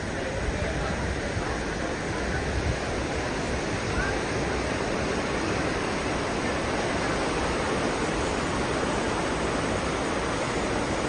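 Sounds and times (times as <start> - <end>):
wind and water rushing: 0.0 - 11.0.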